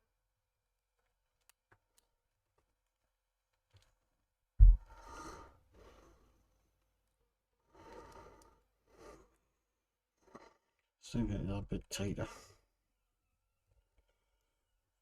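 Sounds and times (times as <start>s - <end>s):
sharp low thump: 4.6s - 4.8s.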